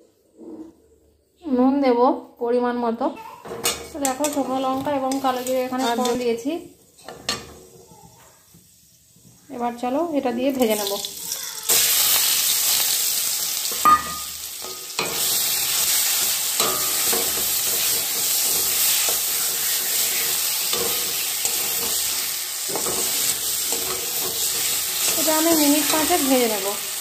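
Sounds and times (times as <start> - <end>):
spatula scraping a pan: 3.5 - 8.3, 14.5 - 26.6
paste sizzling in hot oil: 4.0 - 27.0.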